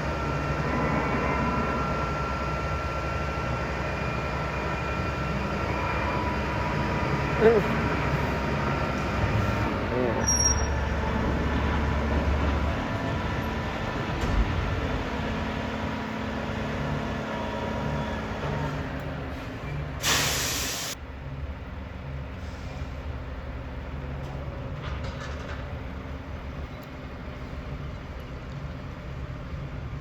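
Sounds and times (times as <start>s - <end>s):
diesel truck engine running: 0.0s - 24.8s
air brake hiss: 19.3s - 21.0s, 22.4s - 23.1s.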